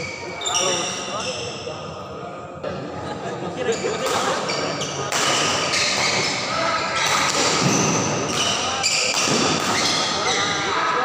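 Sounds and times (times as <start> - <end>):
spectators talking and shouting: 0.0 - 11.0
rackets hitting shuttlecock: 5.0 - 6.3, 7.0 - 10.2.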